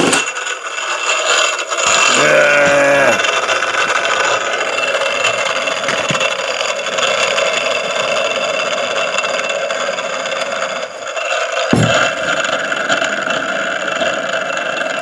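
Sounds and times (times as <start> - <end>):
chainsaw engine running: 0.0 - 15.0
low thump: 11.7 - 12.6.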